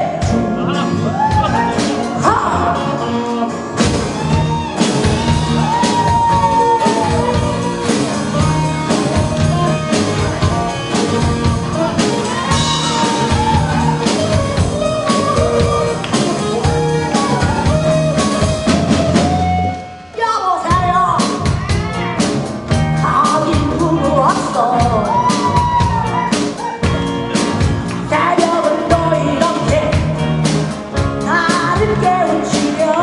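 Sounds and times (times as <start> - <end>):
person singing: 0.0 - 3.6, 4.2 - 19.8, 28.1 - 30.2, 31.2 - 33.0
electric guitar: 0.0 - 20.2, 20.8 - 33.0
bass line: 0.0 - 33.0
drum kit beats: 0.0 - 33.0.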